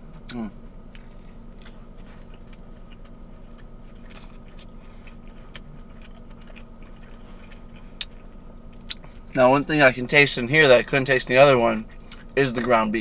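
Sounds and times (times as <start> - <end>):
steady low hum: 0.0 - 13.0
chewing with wet mouth clicks: 0.1 - 9.4, 11.8 - 12.4.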